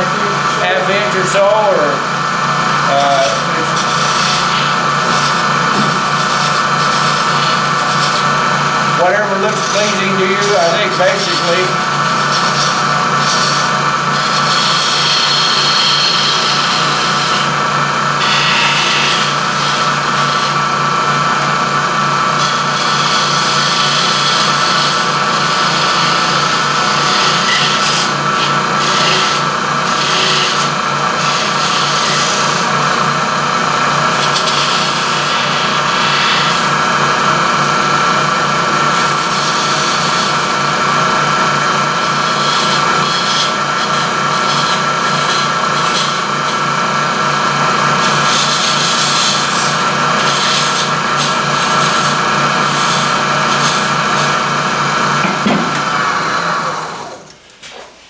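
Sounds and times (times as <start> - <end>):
turning tool cutting wood hiss: 0.0 - 57.5
wood lathe humming: 0.0 - 57.5.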